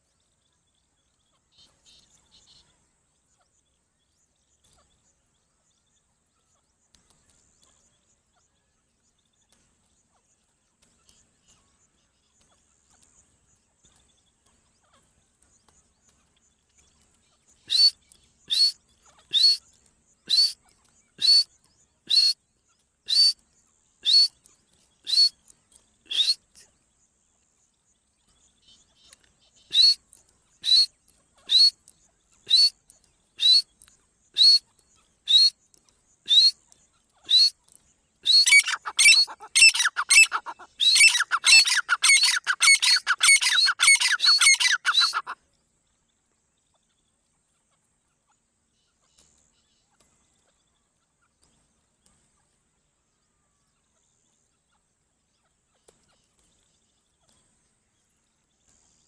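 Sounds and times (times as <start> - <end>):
faint bird chirps: 0.0 - 59.0
partridge calling: 17.6 - 19.7, 20.3 - 20.6, 21.2 - 21.5, 22.1 - 22.4, 23.1 - 23.4, 24.0 - 24.4, 25.1 - 25.4, 26.1 - 26.6, 29.0 - 30.0, 30.6 - 31.8, 32.4 - 32.8, 33.4 - 33.8, 34.4 - 34.7, 35.3 - 35.5, 36.3 - 45.4.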